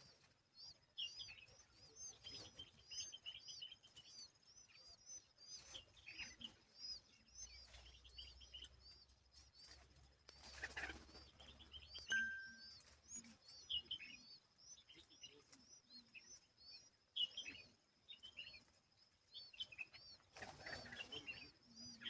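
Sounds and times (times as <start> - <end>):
small birds chirping: 0.0 - 22.0
faint high whine: 12.0 - 14.2.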